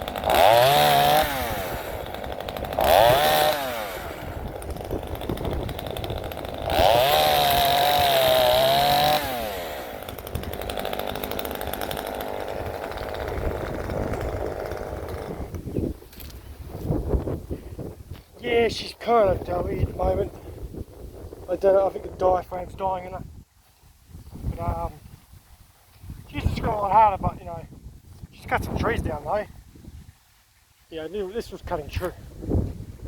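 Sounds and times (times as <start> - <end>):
chainsaw revving: 0.0 - 16.3.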